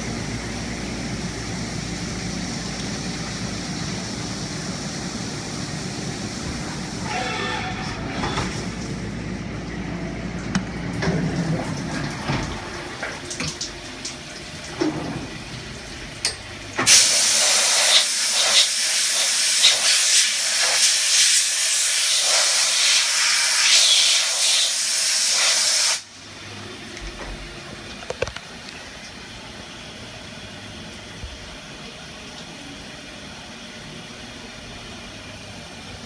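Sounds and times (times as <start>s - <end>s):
loud spray-like hiss: 16.9s - 26.0s.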